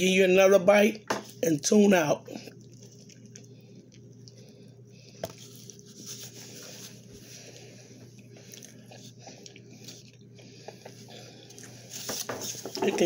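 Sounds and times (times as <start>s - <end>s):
faint close-up chewing: 2.3s - 12.3s.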